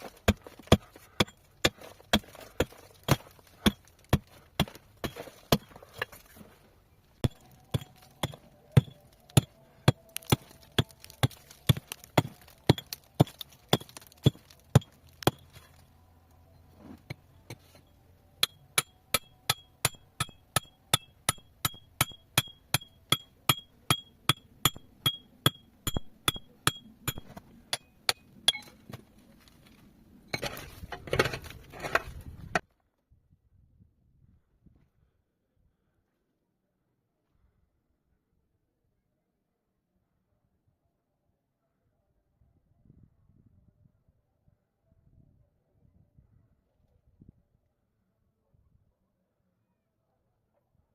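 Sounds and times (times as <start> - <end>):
metal tool chipping rock: 0.0 - 6.4, 7.2 - 15.8, 17.0 - 29.0, 30.3 - 32.6.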